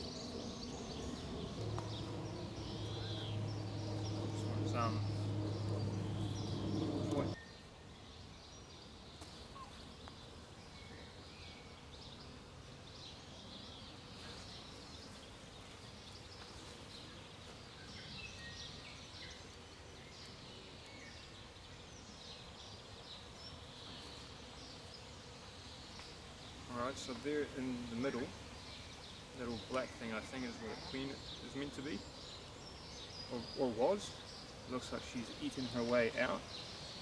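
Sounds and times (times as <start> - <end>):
honeybees buzzing: 0.0 - 7.4
small bird chirps: 0.0 - 7.5.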